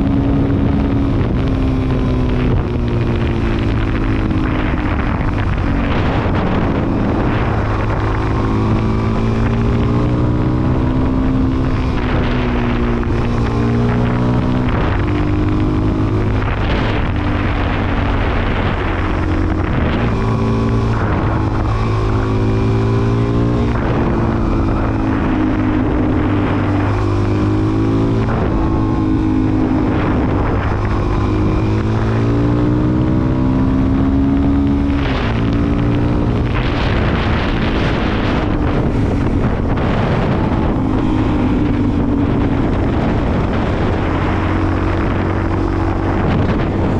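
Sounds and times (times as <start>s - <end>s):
motorcycle engine revving: 0.0s - 46.9s
wind rushing over microphone: 0.0s - 46.9s.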